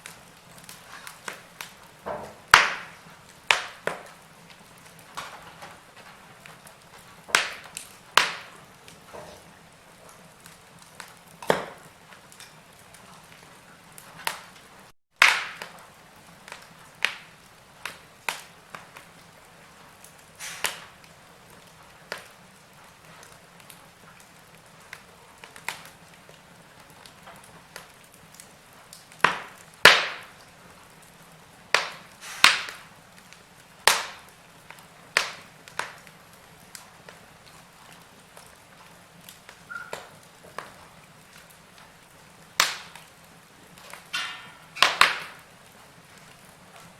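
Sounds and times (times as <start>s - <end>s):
low steady hiss: 0.0s - 46.9s
wood fire crackling: 0.0s - 46.9s.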